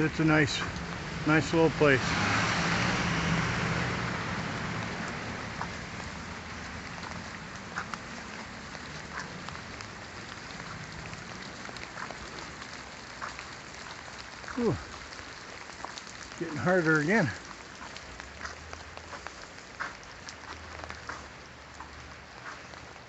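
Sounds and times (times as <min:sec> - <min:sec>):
steady rain falling: 0:00.0 - 0:23.0
water drips: 0:00.0 - 0:23.0
vehicle passing: 0:00.3 - 0:09.7.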